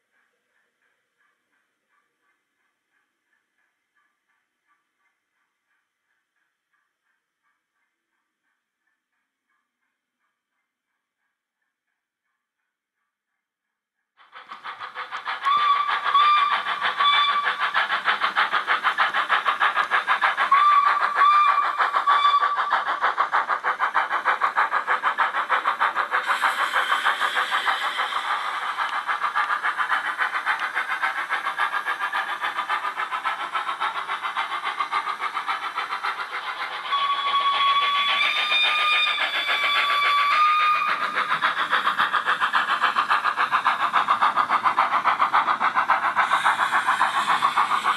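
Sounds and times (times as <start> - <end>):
model steam engine chuffing: 14.2 - 47.9
steam hiss: 14.2 - 47.9.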